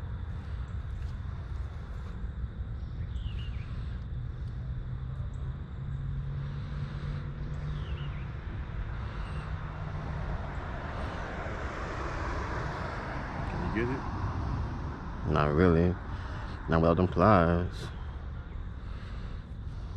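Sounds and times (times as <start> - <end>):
vehicle engine humming: 0.0 - 19.9
bird chirps: 2.9 - 3.9, 7.5 - 8.4.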